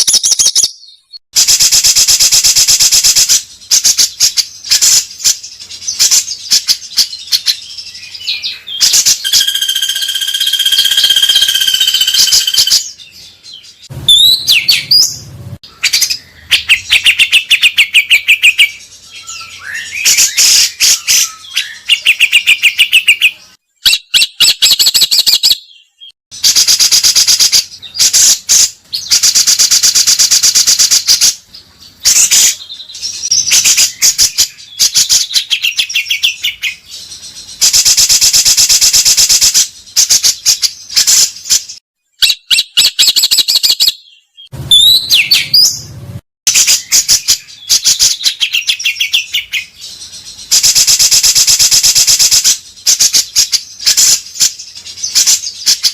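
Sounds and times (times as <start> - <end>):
songbird rattling trills: 8.8 - 13.0.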